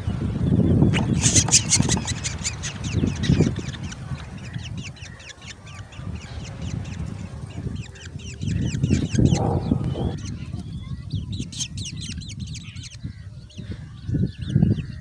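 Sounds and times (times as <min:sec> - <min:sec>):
nestlings begging calls: 0:00.6 - 0:15.0
low rumble: 0:09.0 - 0:10.5.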